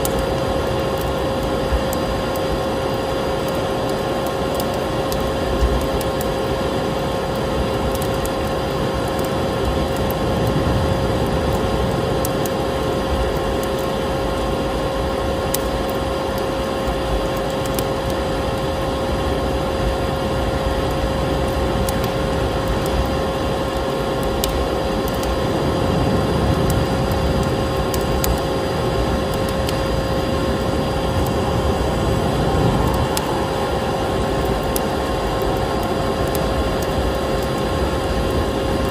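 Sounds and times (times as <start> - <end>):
wood fire crackling: 0.0 - 38.9
vacuum cleaner running: 24.7 - 38.9.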